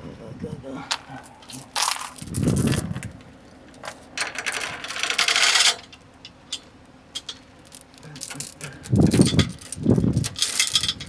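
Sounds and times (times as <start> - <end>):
metal towing gear clattering: 4.2 - 11.0.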